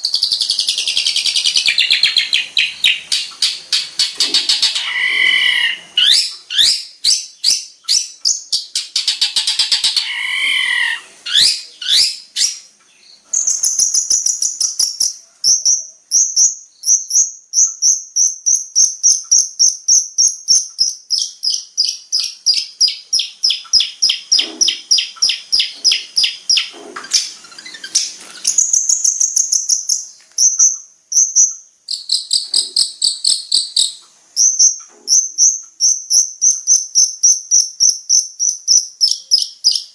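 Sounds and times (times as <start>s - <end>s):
bird chattering: 0.0s - 39.9s
high piercing bird notes: 0.0s - 39.9s
shrike singing loudly: 4.6s - 6.2s.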